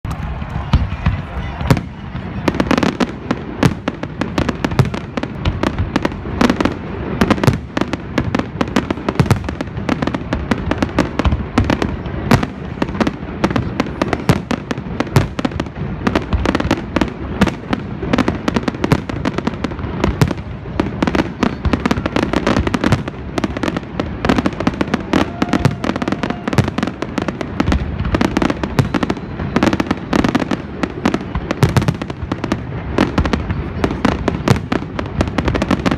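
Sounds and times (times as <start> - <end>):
fireworks bursting: 0.0 - 35.9.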